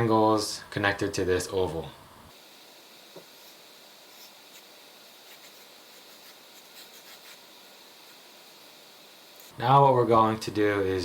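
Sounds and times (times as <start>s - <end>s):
pencil scratching on paper: 3.4s - 7.5s.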